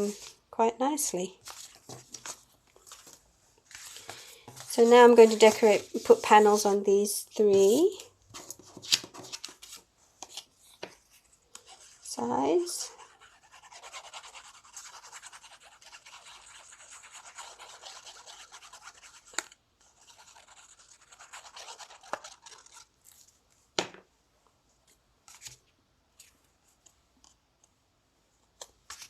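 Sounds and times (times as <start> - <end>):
scratchy rubbing on paper: 4.6 - 6.8, 11.6 - 22.9.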